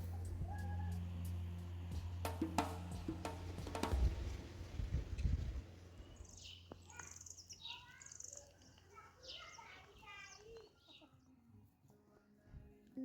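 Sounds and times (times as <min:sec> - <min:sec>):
faint bird chirps: 0:05.2 - 0:11.5.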